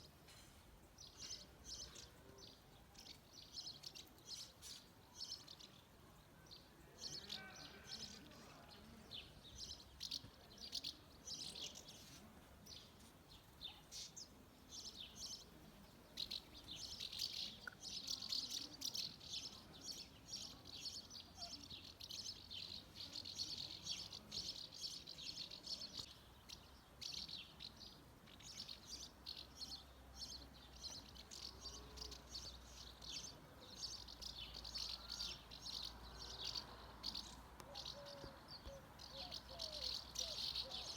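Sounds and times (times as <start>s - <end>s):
swallows twittering: 16.2s - 40.9s.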